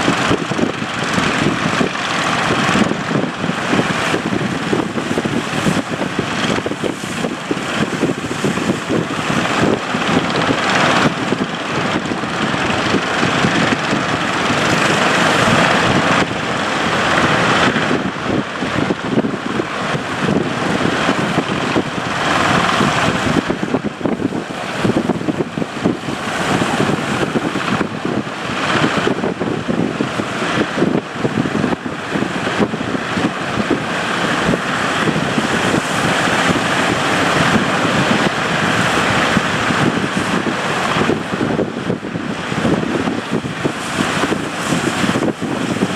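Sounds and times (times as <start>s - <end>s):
boat engine running: 0.0s - 45.9s
rush of wind and water: 0.0s - 45.9s
wind on microphone: 0.0s - 45.9s.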